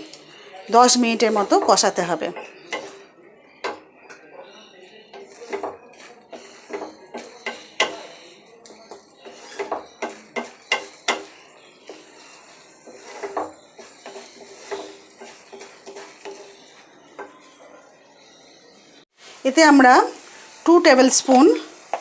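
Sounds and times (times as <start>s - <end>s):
paste frying in oil: 0.0s - 3.9s, 4.9s - 22.0s
spatula scraping pan: 0.0s - 18.5s
spatula clinking against pan: 1.6s - 4.3s, 5.1s - 17.9s.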